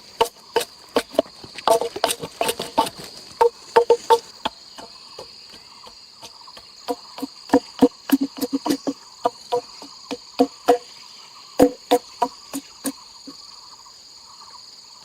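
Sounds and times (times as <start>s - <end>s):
hand tool knocking on wood: 0.0s - 4.9s, 6.6s - 10.9s, 11.6s - 13.0s
insect chirring: 0.0s - 15.0s.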